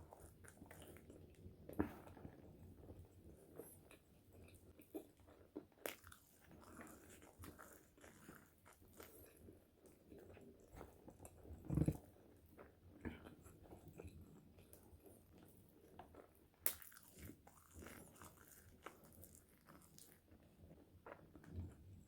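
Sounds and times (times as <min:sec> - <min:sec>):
person chewing crunchy fries: 0:03.6 - 0:10.4, 0:11.1 - 0:21.7.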